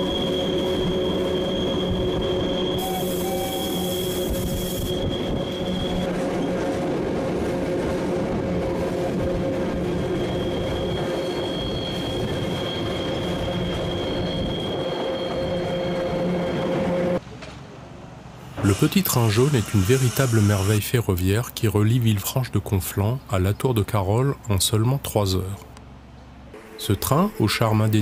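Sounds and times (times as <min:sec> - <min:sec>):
high wheel squeal: 0:00.0 - 0:06.6, 0:09.8 - 0:17.2, 0:18.5 - 0:21.0, 0:26.6 - 0:28.0
train rumbling on rails: 0:00.0 - 0:22.3.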